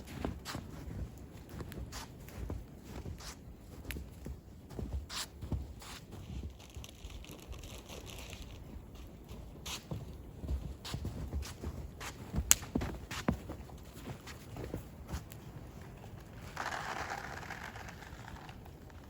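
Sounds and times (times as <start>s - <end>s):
footsteps crunching in snow: 0.0s - 19.0s.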